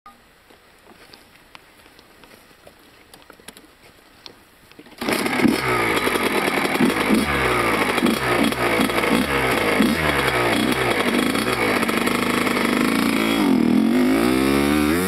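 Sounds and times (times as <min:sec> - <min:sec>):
motocross bike engine revving: 0:05.0 - 0:15.0.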